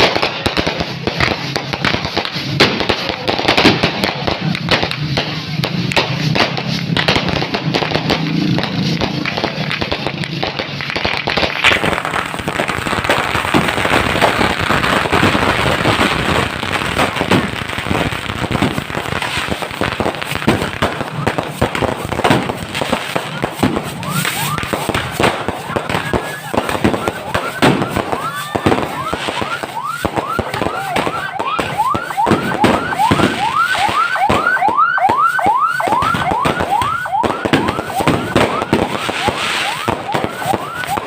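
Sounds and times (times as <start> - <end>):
fireworks crackling and popping: 0.0 - 41.0.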